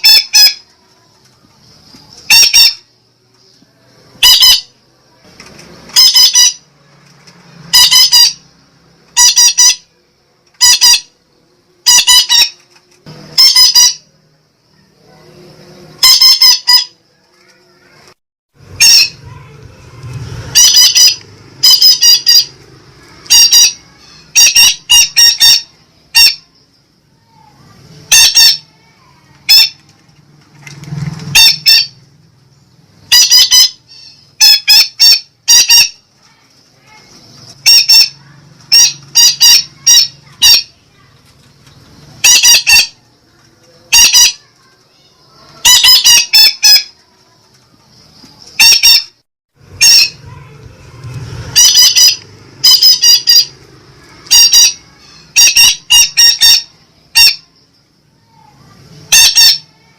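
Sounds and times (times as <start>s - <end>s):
parakeet squawking: 0.0s - 0.7s, 2.2s - 2.9s, 4.2s - 4.8s, 5.9s - 6.7s, 7.7s - 8.5s, 9.1s - 9.9s, 10.6s - 11.2s, 11.8s - 12.6s, 13.3s - 14.1s, 16.0s - 17.0s, 18.6s - 19.5s, 20.4s - 26.5s, 28.1s - 29.8s, 31.3s - 32.0s, 33.1s - 36.0s, 36.9s - 41.1s, 42.2s - 43.0s, 43.8s - 44.5s, 45.6s - 47.0s, 48.5s - 50.5s, 51.5s - 57.5s, 59.0s - 59.9s.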